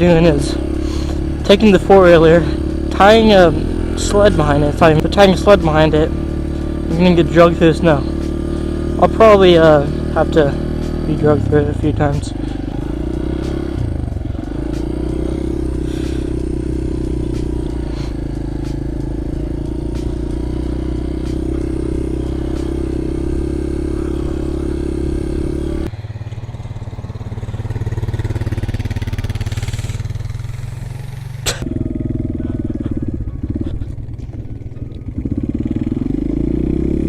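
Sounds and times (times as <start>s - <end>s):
quad bike engine running: 0.0s - 37.0s.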